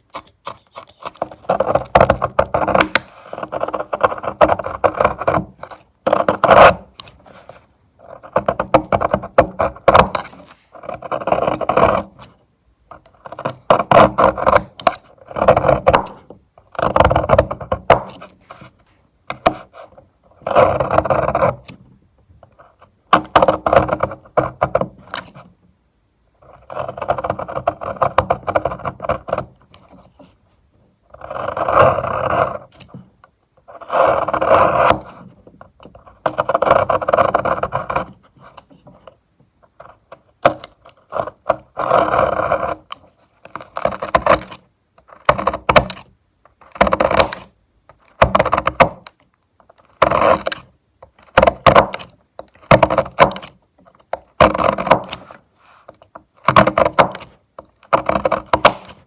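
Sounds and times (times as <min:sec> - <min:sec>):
knife blade shaving soap: 0:00.0 - 0:07.3, 0:08.0 - 0:12.2, 0:13.0 - 0:16.2, 0:16.8 - 0:18.2, 0:20.5 - 0:21.6, 0:23.2 - 0:25.3, 0:26.6 - 0:29.5, 0:31.1 - 0:32.9, 0:33.8 - 0:35.1, 0:36.3 - 0:38.6, 0:39.8 - 0:46.0, 0:46.7 - 0:49.1, 0:49.7 - 0:55.3, 0:56.4 - 0:59.0.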